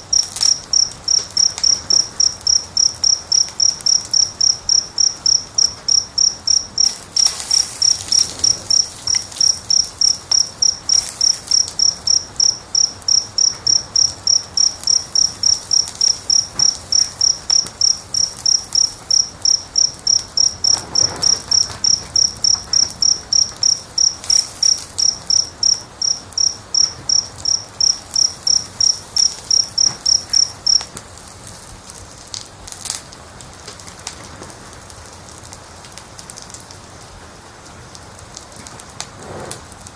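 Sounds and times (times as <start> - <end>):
cricket chirping: 0.0 - 31.3
wood fire crackling: 0.0 - 39.9.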